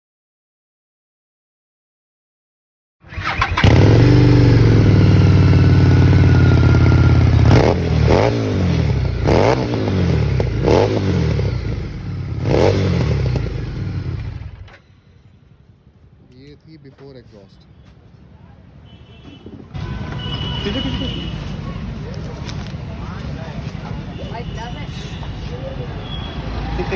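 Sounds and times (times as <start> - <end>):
motorcycle engine idling and revving: 3.0 - 14.8, 19.7 - 26.9.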